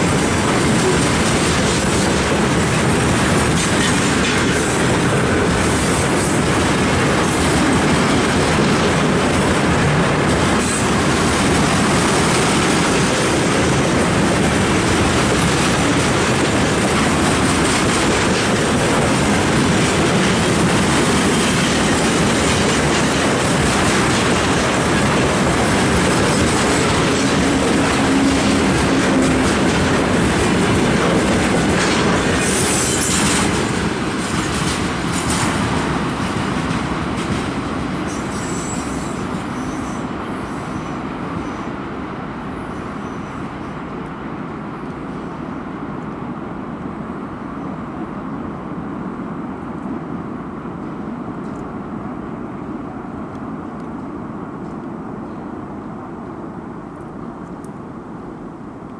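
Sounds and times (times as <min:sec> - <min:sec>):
train wheels clattering over rail joints: 0:00.0 - 0:40.1
train wheel squeal: 0:17.1 - 0:36.1, 0:36.7 - 0:43.9, 0:46.8 - 0:52.2.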